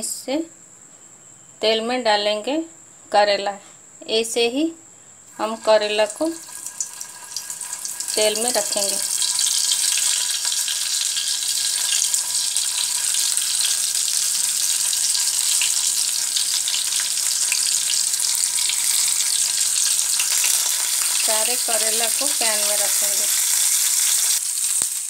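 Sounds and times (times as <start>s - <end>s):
food sizzling in hot oil: 5.3s - 25.0s
small crackles: 6.1s - 25.0s.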